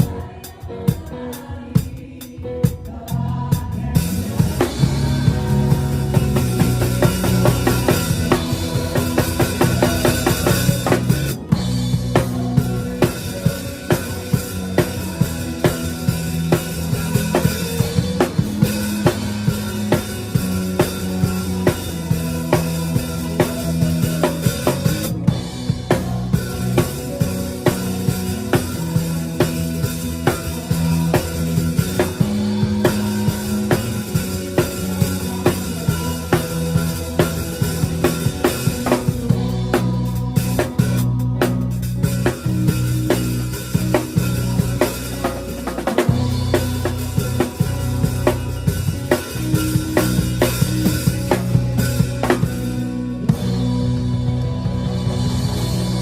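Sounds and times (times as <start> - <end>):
drum kit groove: 0.0 - 56.0
sustained bass notes: 2.7 - 56.0
keyboard notes: 4.3 - 56.0.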